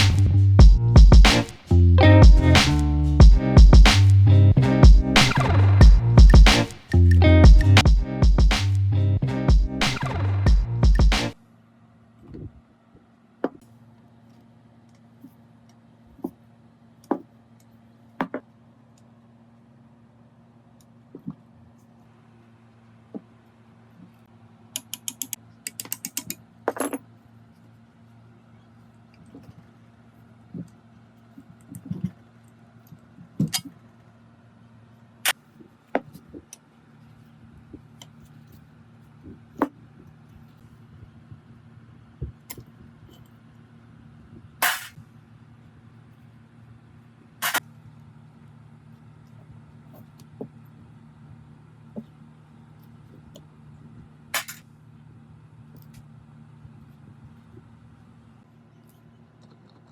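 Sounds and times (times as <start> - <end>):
faint steady hum: 0.0 - 59.9
metal tools clicking and knocking: 24.8 - 27.0.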